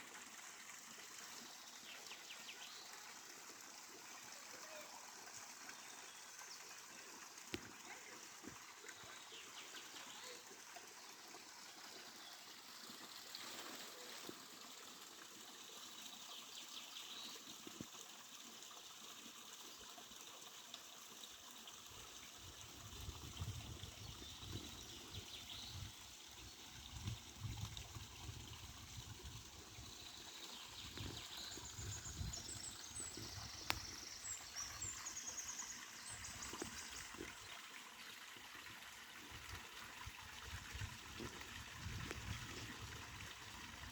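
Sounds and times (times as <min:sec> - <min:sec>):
stream trickling: 0:00.0 - 0:43.9
small birds chirping: 0:29.8 - 0:37.6.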